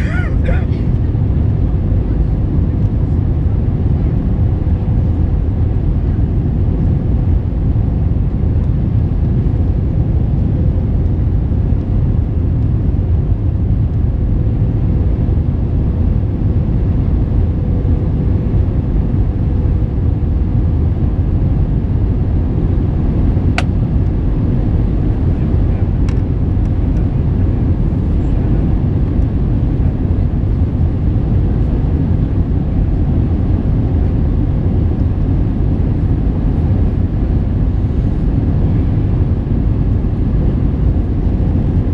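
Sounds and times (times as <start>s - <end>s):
airplane cabin engine rumble: 0.0s - 41.9s.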